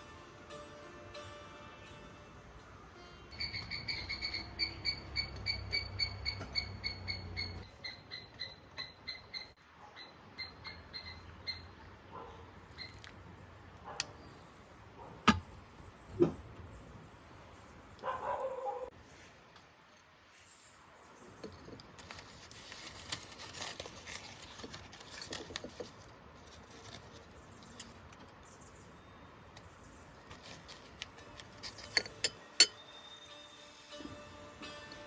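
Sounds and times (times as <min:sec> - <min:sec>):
animal high chirps: 0:03.4 - 0:11.8.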